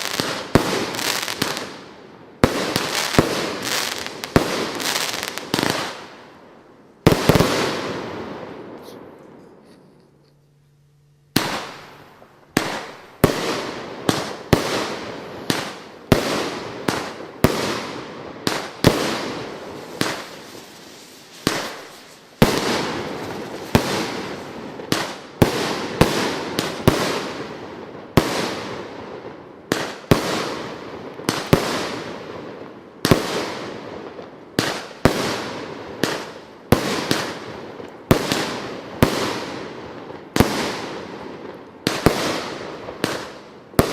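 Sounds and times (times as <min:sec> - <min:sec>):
firework shots bursting: 0:00.0 - 0:06.2, 0:07.0 - 0:09.0, 0:11.3 - 0:28.9, 0:41.8 - 0:43.9.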